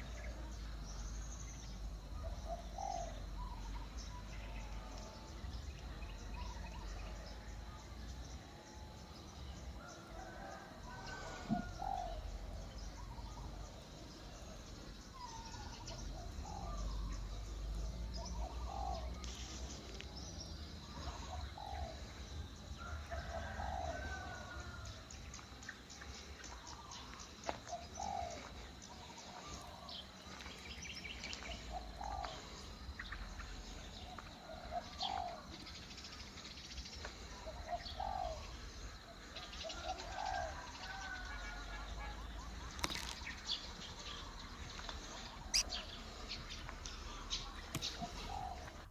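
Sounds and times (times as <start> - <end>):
birds chirping and ticking: 0.0 - 8.4, 9.2 - 48.9
birds calling low notes: 25.2 - 48.9.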